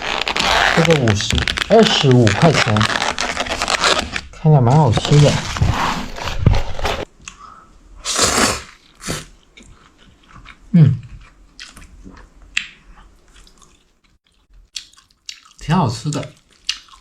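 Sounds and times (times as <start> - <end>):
person slurping and chewing noodles: 8.0 - 15.6, 16.3 - 17.0.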